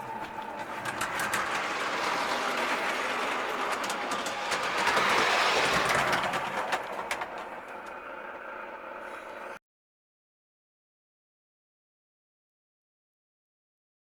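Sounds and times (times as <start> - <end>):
model train wheels rattling on rails: 0.0 - 9.6.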